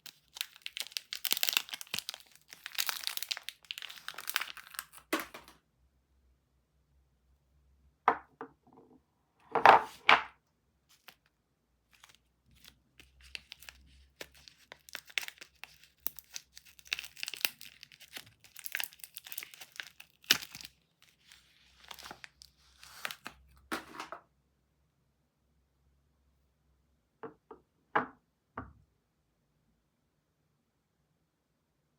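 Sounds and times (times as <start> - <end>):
wrapper crinkling and tearing: 0.0 - 5.5, 11.9 - 24.0.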